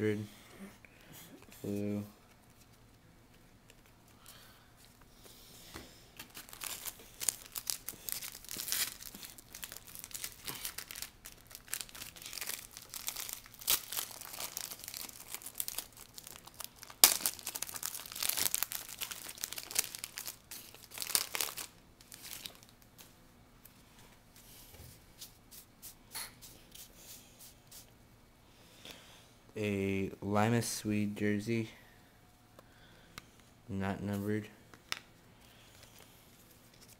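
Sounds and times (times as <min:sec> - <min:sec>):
card wrapper crinkling and tearing: 0:06.2 - 0:22.8.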